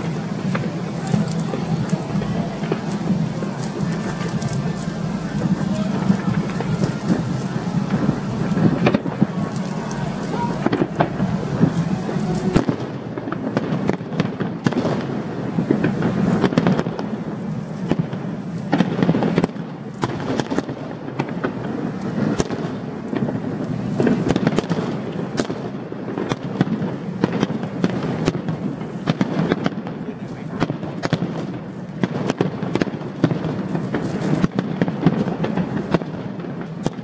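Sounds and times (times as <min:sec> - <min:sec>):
fireworks bursting and crackling: 0:00.0 - 0:37.0.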